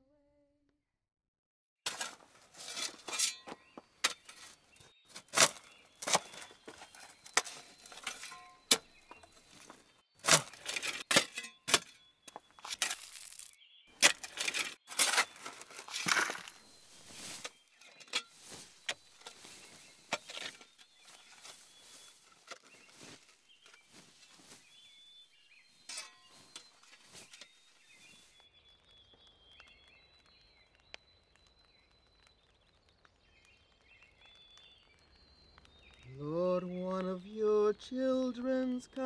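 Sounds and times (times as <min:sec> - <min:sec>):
rustles and clicks: 0:01.9 - 0:25.0, 0:25.8 - 0:28.5
bird chirps: 0:03.1 - 0:39.0.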